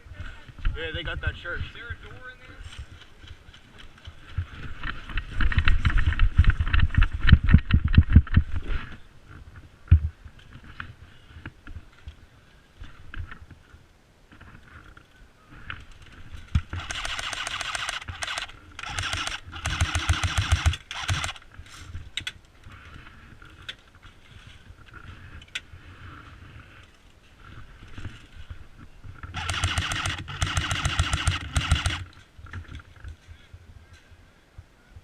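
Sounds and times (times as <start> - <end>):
airsoft guns firing bursts: 16.7 - 21.5, 29.4 - 32.1.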